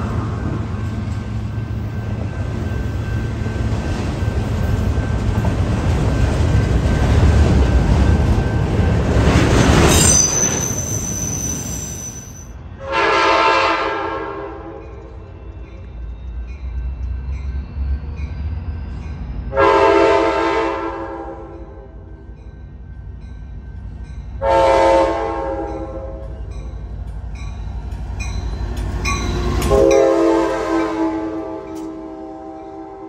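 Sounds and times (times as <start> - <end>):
train wheels rumbling on rail: 0.0 - 33.0
locomotive horn chord: 12.8 - 14.8, 19.5 - 21.9, 24.4 - 26.4, 29.7 - 33.0.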